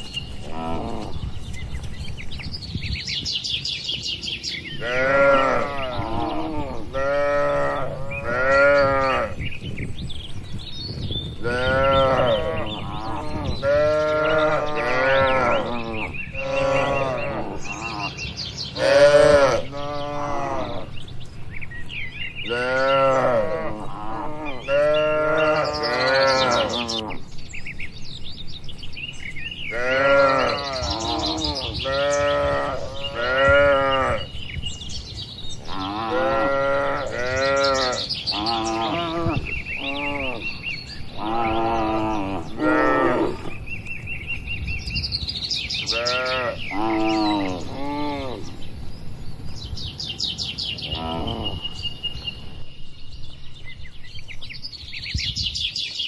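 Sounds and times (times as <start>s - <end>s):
small birds chirping: 0.0s - 56.0s
cattle mooing: 11.4s - 18.2s, 18.8s - 20.9s, 22.5s - 27.2s.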